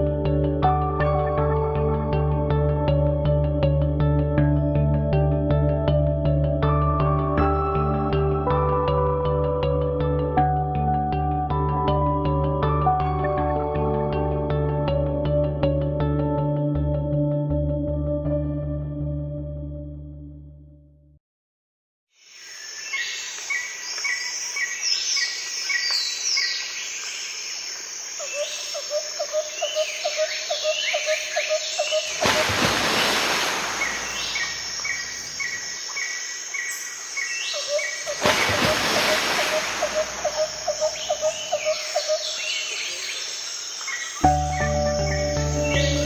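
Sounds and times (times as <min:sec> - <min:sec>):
birds chirping and trilling: 0:28.2 - 0:46.0
quick repeated lower bird call: 0:37.5 - 0:42.5.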